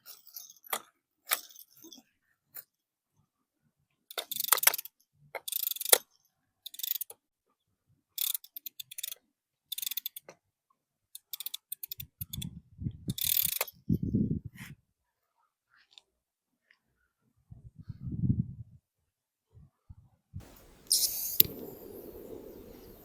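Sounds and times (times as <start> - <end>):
fishing reel ratcheting whir: 8.2 - 10.2, 13.1 - 13.6, 20.5 - 23.0.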